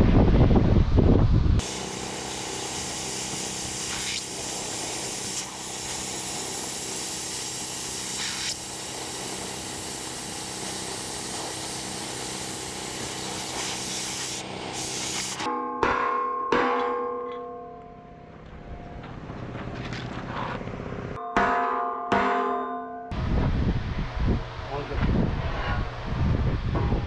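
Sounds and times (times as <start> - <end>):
motor hum: 1.4 - 15.5
power tool hissing on metal: 1.6 - 15.5.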